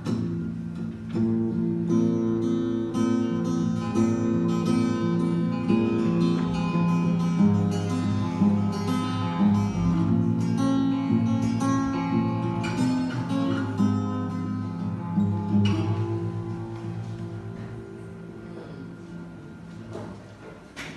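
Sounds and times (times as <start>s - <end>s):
acoustic guitar music: 0.0s - 20.9s.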